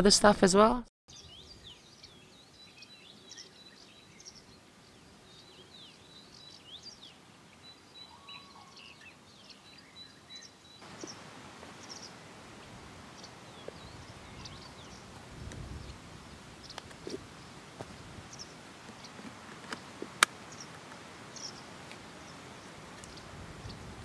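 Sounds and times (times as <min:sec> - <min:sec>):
birds chirping and whistling: 0:05.7 - 0:11.2, 0:13.2 - 0:15.1.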